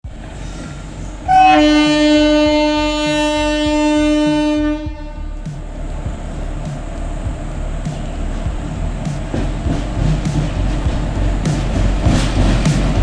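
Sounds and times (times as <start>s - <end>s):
rumble of moving train: 0.0s - 13.0s
train horn blast: 1.3s - 5.7s
wheels knocking over rail joints: 8.2s - 13.0s.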